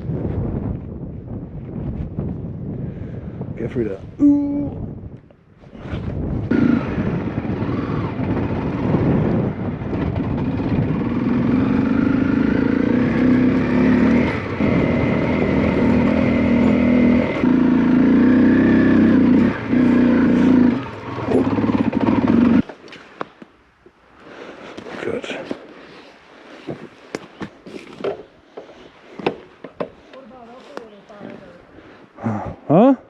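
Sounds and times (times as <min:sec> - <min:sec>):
motorcycle engine running: 0:06.5 - 0:22.6.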